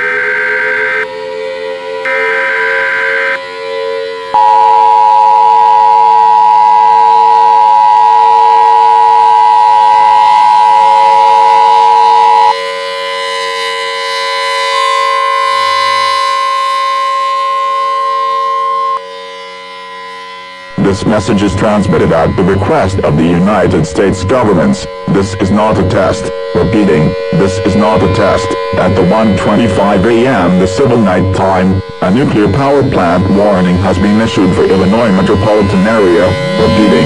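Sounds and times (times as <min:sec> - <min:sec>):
loud two-note alert tone: 0:00.0 - 0:37.0
siren: 0:00.0 - 0:37.0
single steady tone: 0:02.0 - 0:12.6, 0:20.4 - 0:37.0.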